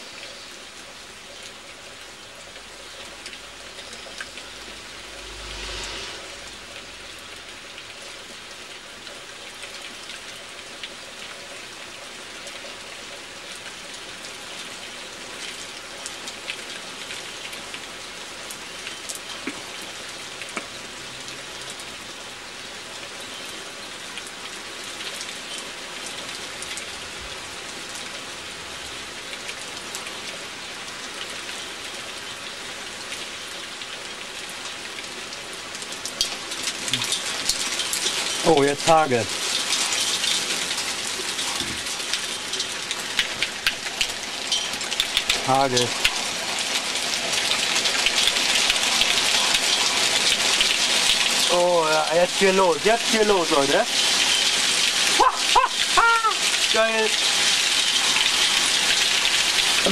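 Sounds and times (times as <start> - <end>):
steady rain falling: 0.0 - 59.9
low rumble: 4.4 - 7.6.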